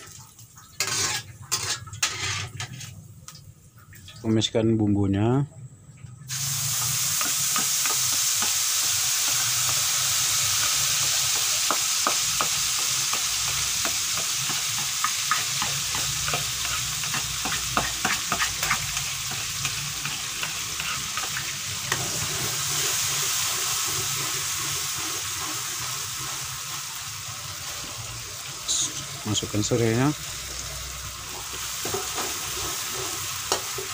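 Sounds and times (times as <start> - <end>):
paste sizzling in hot oil: 0.8 - 2.9, 6.3 - 33.9
utensil stirring in a pan: 0.8 - 3.0, 6.6 - 28.1, 31.2 - 33.9.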